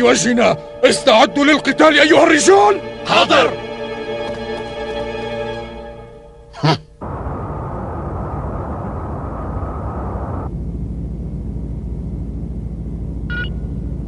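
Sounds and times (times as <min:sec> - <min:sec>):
low mechanical hum: 0:07.0 - 0:14.0
rushing spaceship engine noise: 0:07.0 - 0:14.0
short electronic beep: 0:13.3 - 0:13.7.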